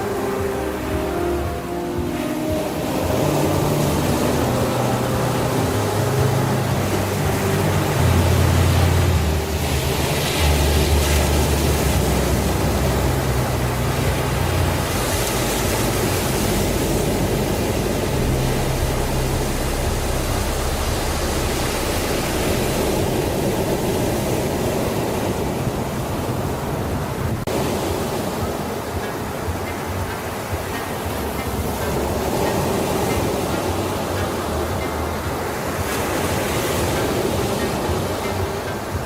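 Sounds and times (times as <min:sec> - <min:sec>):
low sustained drone: 0:00.0 - 0:27.8
steady rushing noise: 0:00.0 - 0:39.0.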